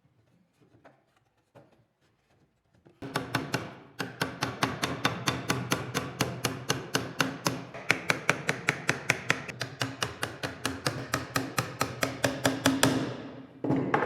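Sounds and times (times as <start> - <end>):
hand tool tapping on wood: 3.0 - 13.2.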